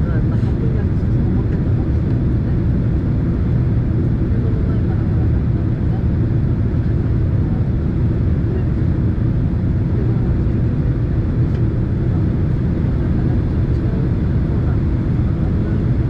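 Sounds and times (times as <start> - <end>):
airliner cabin roar: 0.0 - 16.0.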